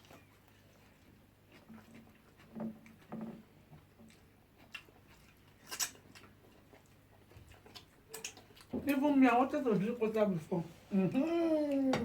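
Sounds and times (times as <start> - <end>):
faint eating noises: 0.0 - 12.0.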